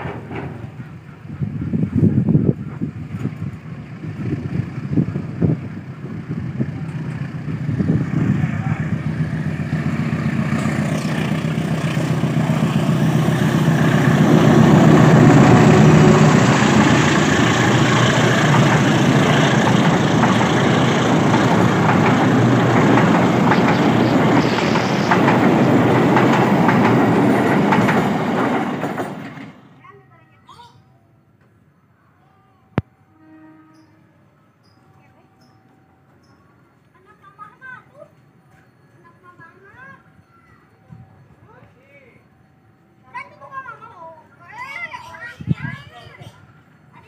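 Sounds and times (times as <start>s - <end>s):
wheels clicking over rail joints: 0.0s - 4.7s, 9.0s - 29.8s
diesel locomotive engine passing: 0.0s - 30.2s
train coaches rolling by: 0.0s - 30.2s, 33.0s - 47.0s.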